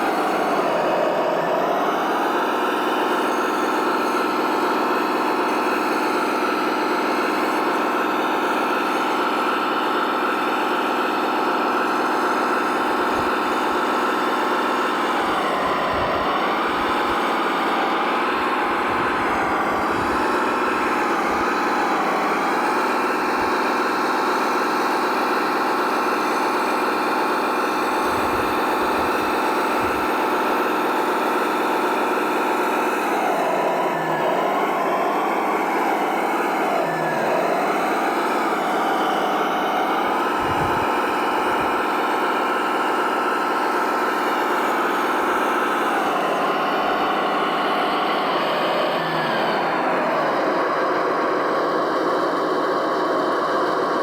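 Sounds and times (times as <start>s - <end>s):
model vehicle engine hum: 0.0s - 54.0s.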